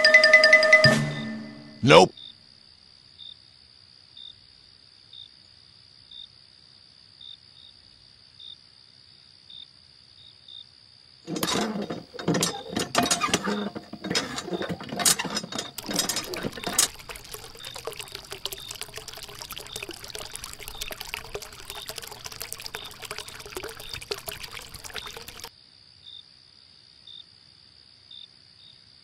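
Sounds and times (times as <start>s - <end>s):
hand pump lever clattering: 11.3s - 25.5s.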